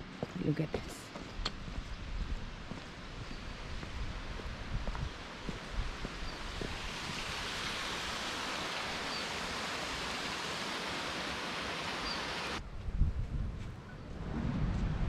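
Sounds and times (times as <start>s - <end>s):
waterfall rushing: 6.4s - 12.6s
low rumble: 12.7s - 15.0s.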